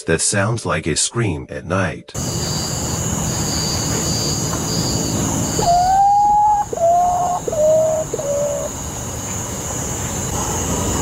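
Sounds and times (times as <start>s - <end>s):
bird mournful whistled notes: 5.6s - 8.7s.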